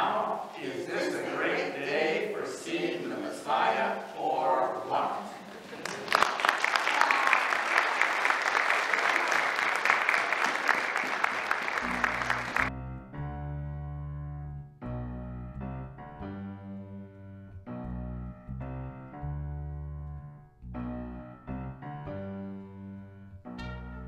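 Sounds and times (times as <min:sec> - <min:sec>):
congregation clapping: 0:05.5 - 0:12.7
piano music with held bass notes: 0:11.8 - 0:24.0.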